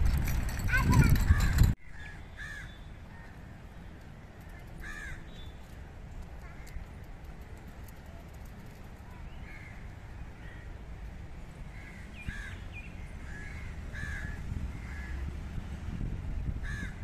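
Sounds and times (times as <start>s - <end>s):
birds calling: 11.6s - 15.2s.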